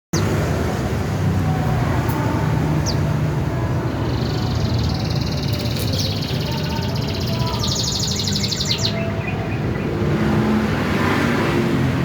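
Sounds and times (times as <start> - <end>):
songbird chirping and trilling: 0.2 - 10.6.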